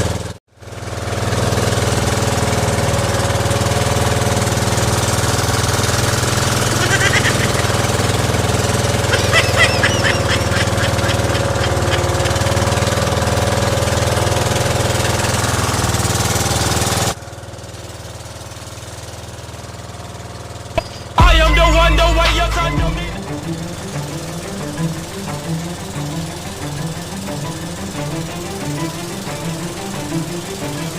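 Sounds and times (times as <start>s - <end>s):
small boat engine rattling: 0.0s - 21.9s, 23.2s - 30.9s
music: 21.2s - 30.9s.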